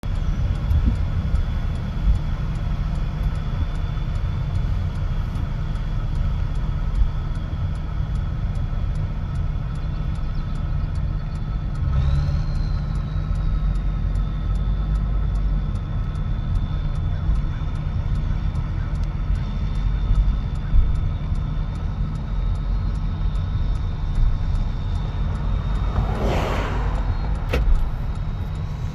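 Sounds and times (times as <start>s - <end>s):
tractor engine rumbling: 0.0s - 28.9s
turbo whine: 0.0s - 28.9s
rushing noise: 23.8s - 28.9s.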